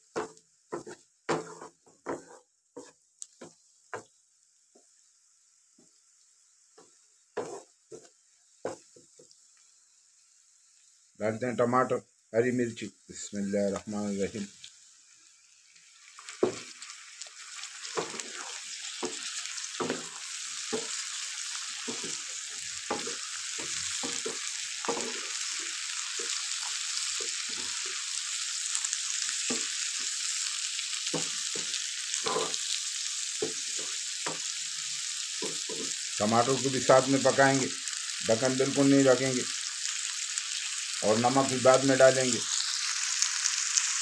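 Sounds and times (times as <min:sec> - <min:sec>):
vegetables sizzling in a frying pan: 0:00.0 - 0:44.0
wooden spatula scraping pan: 0:00.2 - 0:03.0, 0:07.4 - 0:08.1, 0:17.8 - 0:28.0, 0:31.2 - 0:32.7.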